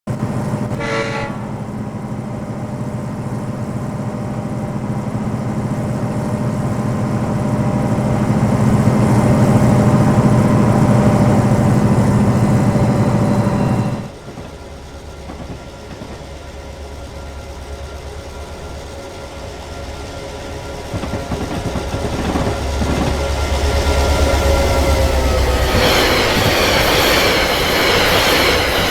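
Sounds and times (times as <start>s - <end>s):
train running: 0.1s - 28.9s
train horn blast: 0.5s - 1.9s.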